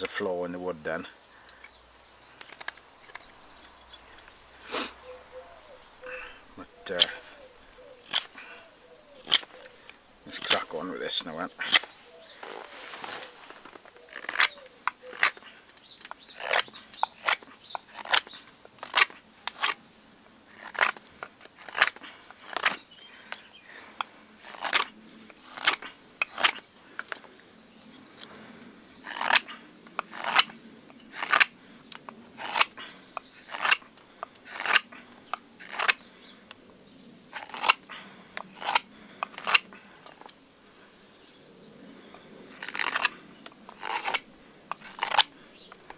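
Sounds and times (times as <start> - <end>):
carving knife slicing wood: 2.4 - 8.5, 9.1 - 11.9, 14.0 - 19.8, 20.5 - 22.8, 24.4 - 27.2, 29.0 - 31.6, 32.4 - 33.8, 34.4 - 36.0, 37.3 - 37.9, 38.5 - 40.3, 42.5 - 45.4.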